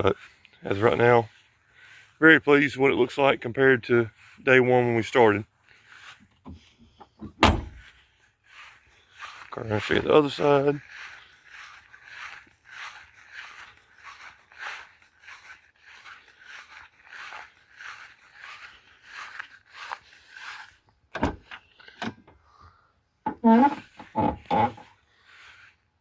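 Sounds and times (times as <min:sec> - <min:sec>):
footsteps walking: 0:00.0 - 0:22.0, 0:23.7 - 0:25.9
truck door click and knocks: 0:07.3 - 0:07.8.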